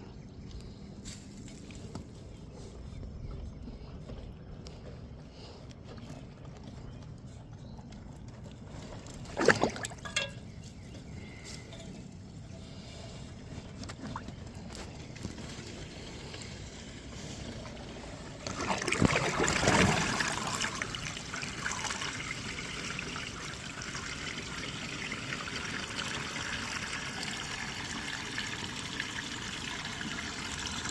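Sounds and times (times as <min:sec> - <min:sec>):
water splashing in rain gutter: 0:09.3 - 0:10.4, 0:17.7 - 0:30.9.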